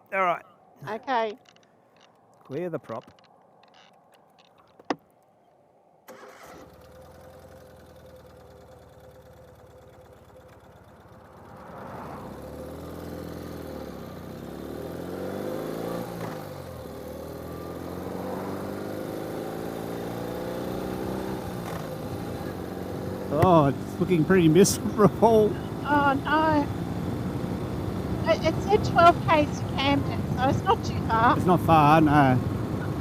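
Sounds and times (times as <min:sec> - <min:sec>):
motorcycle engine idling and accelerating: 0:00.2 - 0:33.0.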